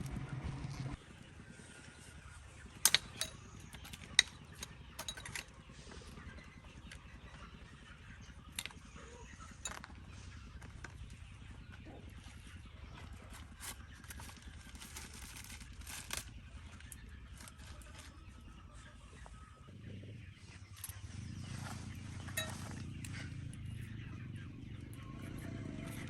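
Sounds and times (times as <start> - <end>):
engine running: 0.0 - 26.0
hand tools clanking on metal: 2.8 - 5.6, 22.2 - 23.2.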